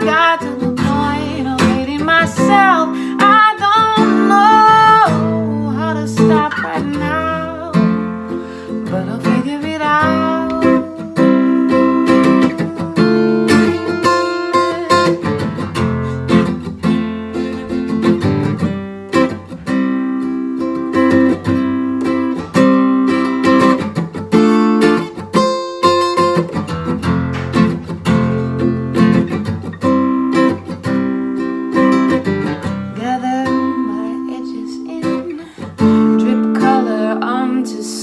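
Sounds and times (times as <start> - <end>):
person singing: 0.0 - 15.6, 32.9 - 38.0
acoustic guitar playing: 0.0 - 38.0.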